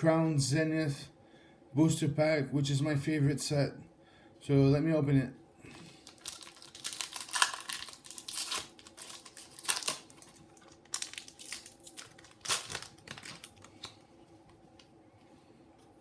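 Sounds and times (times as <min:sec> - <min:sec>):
foil wrapper crinkling and tearing: 0:05.9 - 0:14.0.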